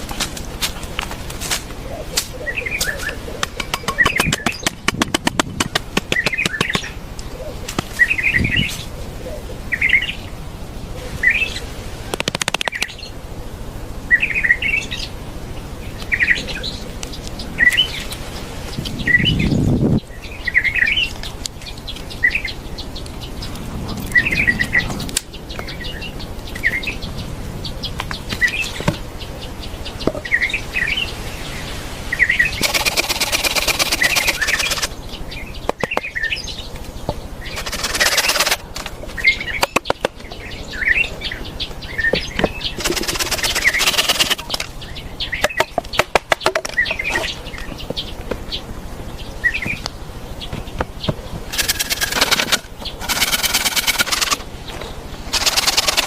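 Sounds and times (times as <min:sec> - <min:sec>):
bird chirping: 0:01.7 - 0:56.0
rapid clicks: 0:12.1 - 0:13.0, 0:32.6 - 0:34.9, 0:37.5 - 0:40.1, 0:42.8 - 0:44.8, 0:51.5 - 0:54.4, 0:55.3 - 0:56.0.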